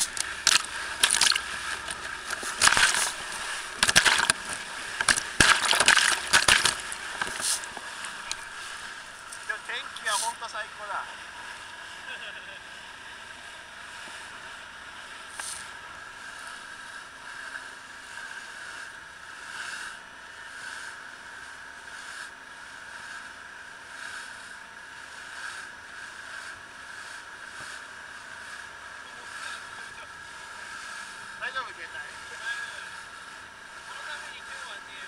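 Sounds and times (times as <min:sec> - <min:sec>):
rushing water: 0:00.0 - 0:10.3
hull hitting waves: 0:00.0 - 0:10.4
boat engine drone: 0:00.0 - 0:35.0.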